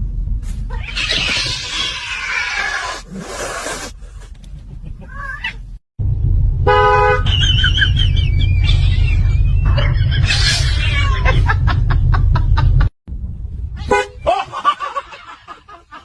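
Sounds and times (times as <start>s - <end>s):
heavy low rumble: 0.0s - 2.1s, 4.0s - 15.0s
cat hissing: 0.7s - 4.0s
car horn toot: 6.6s - 7.3s, 13.8s - 14.3s.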